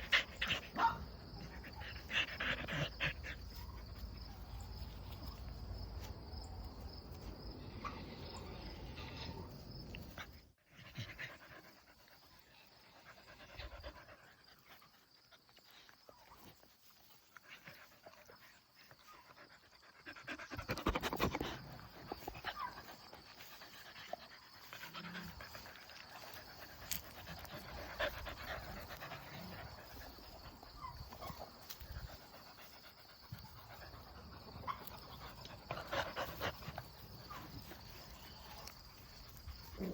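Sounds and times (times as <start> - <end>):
dog panting: 0.0 - 4.2, 17.4 - 38.0.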